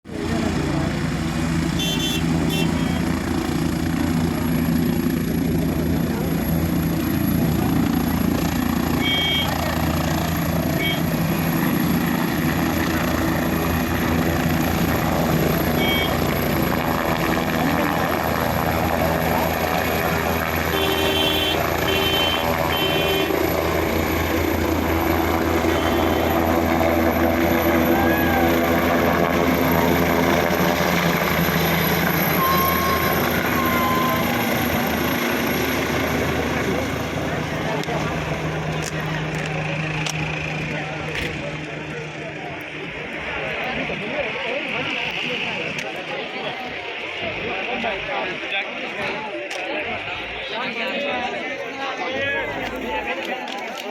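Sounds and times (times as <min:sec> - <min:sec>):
helicopter rotor and engine: 0:00.1 - 0:53.9
brief high tones: 0:32.4 - 0:34.5.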